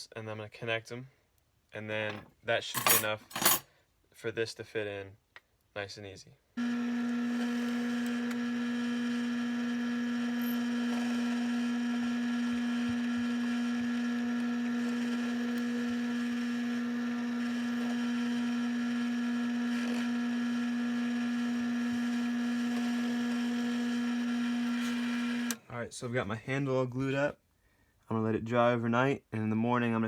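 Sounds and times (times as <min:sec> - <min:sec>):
electric drill running: 0:06.6 - 0:25.6.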